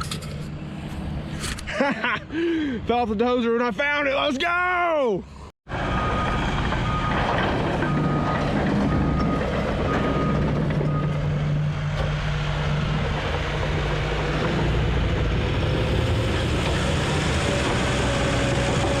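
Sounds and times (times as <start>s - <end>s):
diesel engine running: 5.7s - 19.0s.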